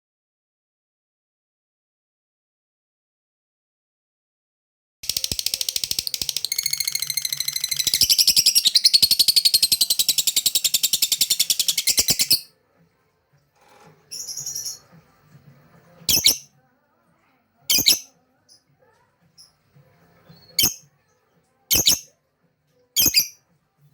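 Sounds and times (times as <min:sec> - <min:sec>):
lovebird chattering trill: 0:05.0 - 0:12.5, 0:16.1 - 0:16.4, 0:17.7 - 0:18.1, 0:21.7 - 0:22.0, 0:23.0 - 0:23.4
soft bird chirps: 0:05.0 - 0:12.5, 0:21.7 - 0:22.1, 0:23.0 - 0:23.4.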